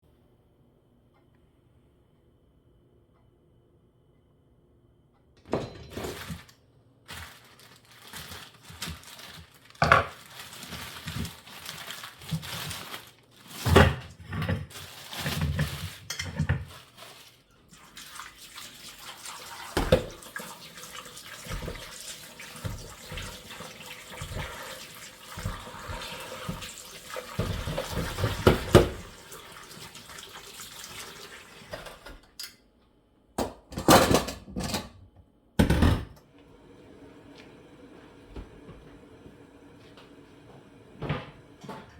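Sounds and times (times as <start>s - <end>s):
tap water running into sink: 17.7s - 32.2s.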